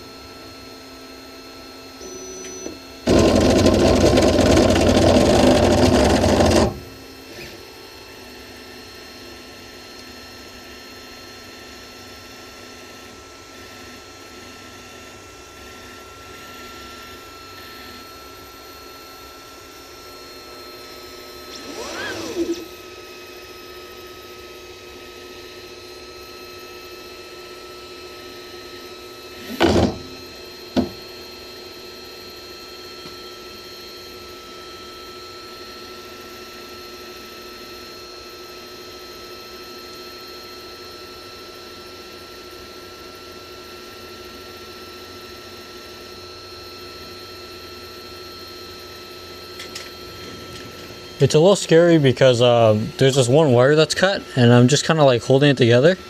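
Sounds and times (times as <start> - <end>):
motor whine: 0.0 - 56.0
printer fans humming: 2.0 - 34.7, 46.8 - 56.0
loud knock: 29.6 - 30.1.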